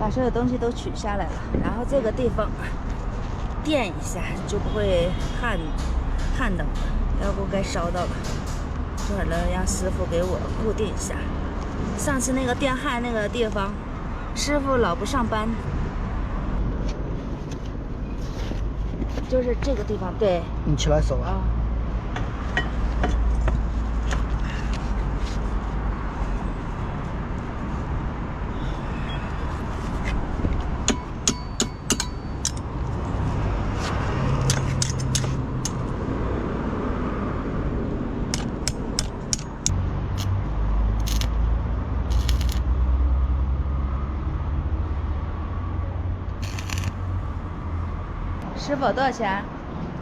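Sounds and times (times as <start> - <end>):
welding clicks and crackle: 41.0 - 41.3, 42.1 - 42.7, 46.4 - 47.0.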